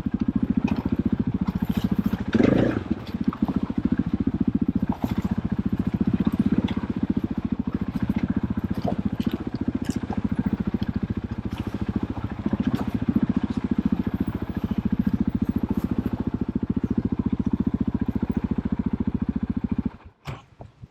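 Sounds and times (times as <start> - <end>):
motorcycle engine idling: 0.0 - 20.2.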